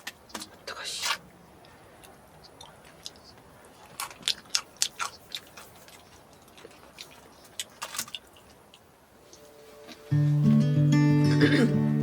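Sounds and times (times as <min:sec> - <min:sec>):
chewing crisp food: 0:01.6 - 0:08.9.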